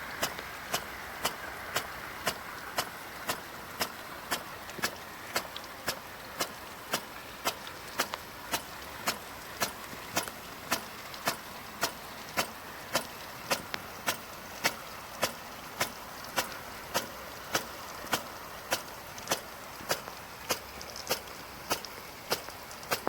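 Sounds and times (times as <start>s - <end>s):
irrigator sharp regular clicks: 0.0s - 23.0s
water hissing: 0.0s - 23.0s.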